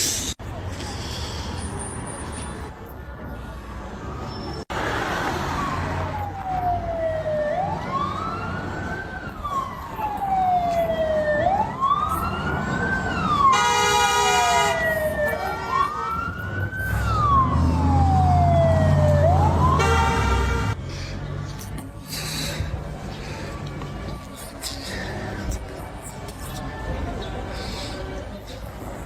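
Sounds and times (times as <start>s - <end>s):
emergency siren wailing: 5.2s - 20.8s.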